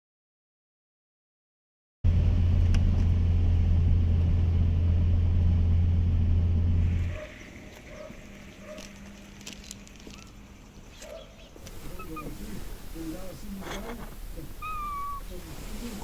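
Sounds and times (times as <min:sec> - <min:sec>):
loud steady low hum: 0:02.1 - 0:08.5.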